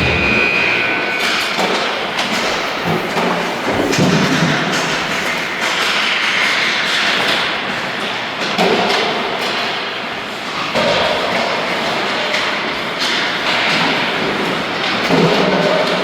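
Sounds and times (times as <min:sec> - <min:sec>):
echoing hall rumble: 0:00.0 - 0:05.6.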